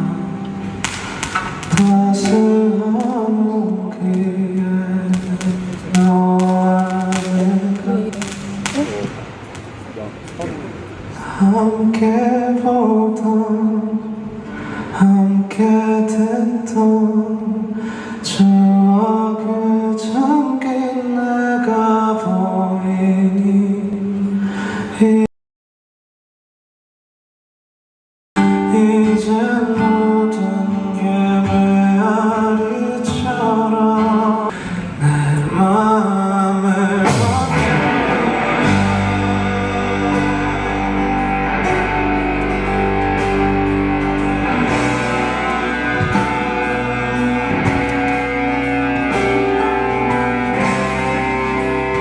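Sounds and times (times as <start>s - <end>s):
person singing: 0.0s - 9.1s, 28.4s - 52.0s
live band playing: 37.0s - 52.0s.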